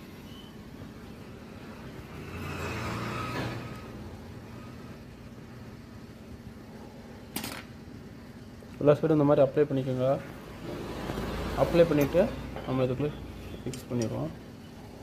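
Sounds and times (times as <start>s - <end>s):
vehicle passing by: 1.5s - 5.0s, 10.4s - 12.6s
low background hum: 3.6s - 15.0s.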